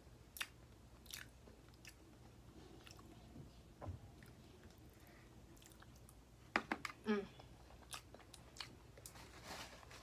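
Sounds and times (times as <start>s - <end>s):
close-up chewing: 0.3s - 3.2s, 4.2s - 6.2s, 7.5s - 9.2s.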